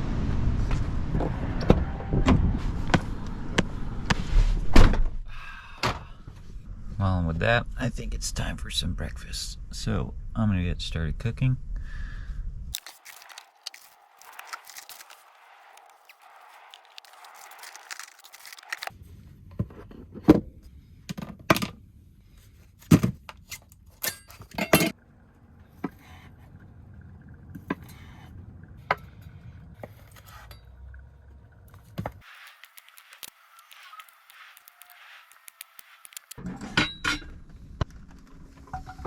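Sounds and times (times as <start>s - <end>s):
low hum: 0.0s - 21.0s, 25.0s - 32.2s.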